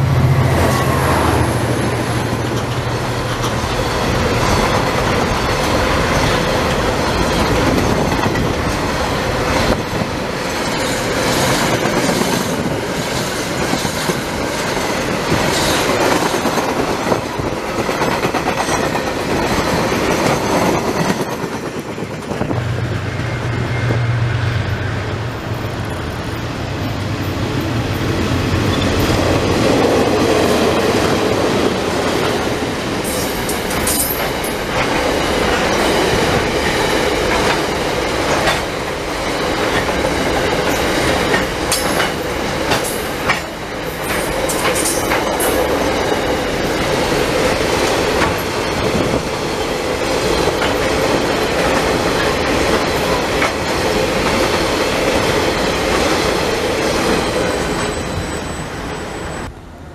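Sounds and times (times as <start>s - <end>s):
locomotive engine drone: 0.0s - 10.4s, 22.4s - 42.8s
train wheels clattering over joints: 33.0s - 38.8s, 39.5s - 56.2s.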